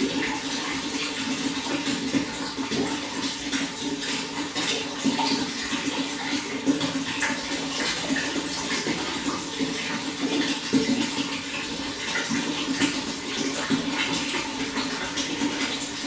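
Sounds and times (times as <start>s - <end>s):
running water splashing: 0.0s - 16.0s.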